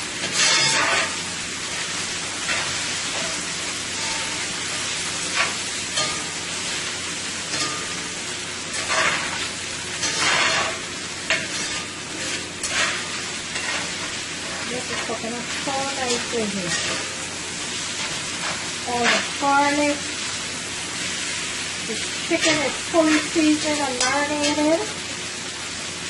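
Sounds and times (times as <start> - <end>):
food sizzling in a skillet: 0.0 - 26.0.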